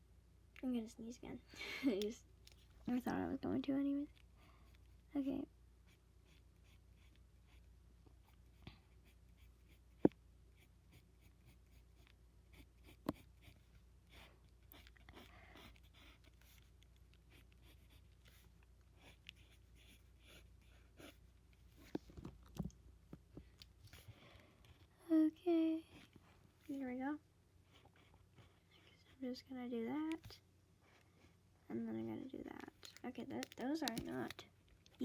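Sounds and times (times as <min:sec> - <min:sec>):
pencil scratching on paper: 0:05.9 - 0:16.7, 0:17.3 - 0:21.4.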